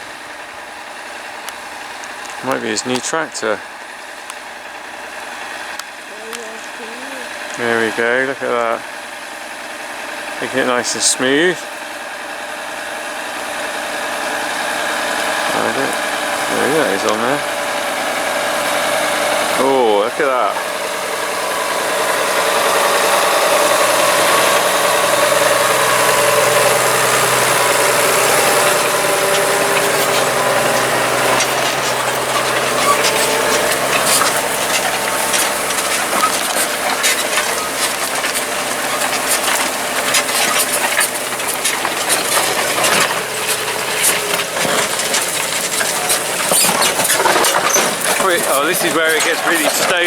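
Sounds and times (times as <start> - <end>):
tractor engine under load: 0.0 - 50.0
clicks and crackles: 27.8 - 50.0.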